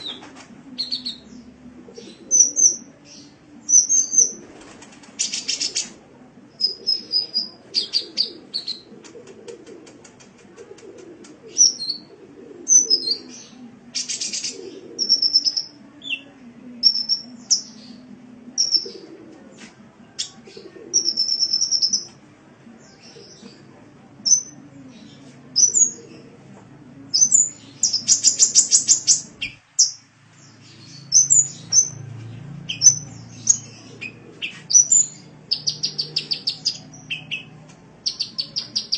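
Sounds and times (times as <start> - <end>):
bird chirping and whistling: 32.7 - 33.6.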